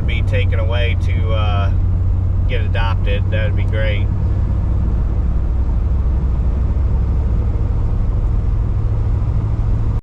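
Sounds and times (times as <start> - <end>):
van engine running: 0.0 - 10.0.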